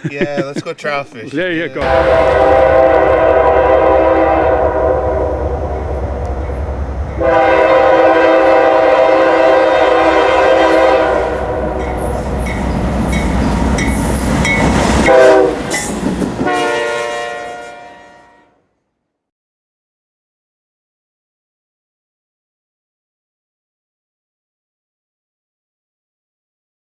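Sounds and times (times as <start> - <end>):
locomotive air horn blasts: 1.8 - 12.2, 15.0 - 15.7, 16.4 - 18.6.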